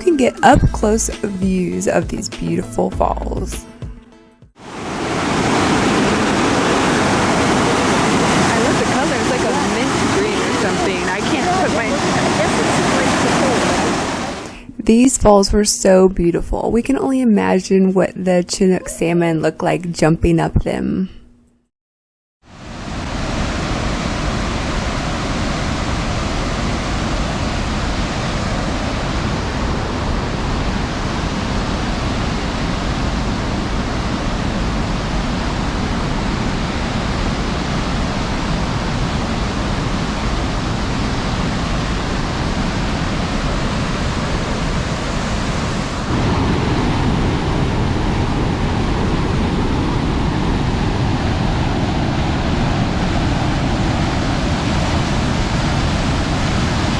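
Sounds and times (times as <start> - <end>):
waterfall rushing: 4.6 - 14.6, 22.5 - 56.9.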